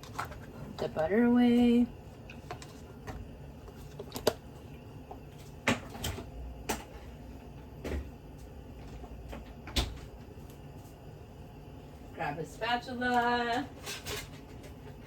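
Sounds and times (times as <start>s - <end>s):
items knocking and clacking: 0.0s - 0.9s.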